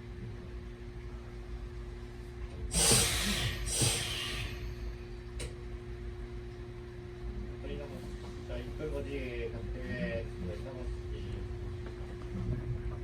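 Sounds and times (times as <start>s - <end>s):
air hisses: 2.7s - 4.8s.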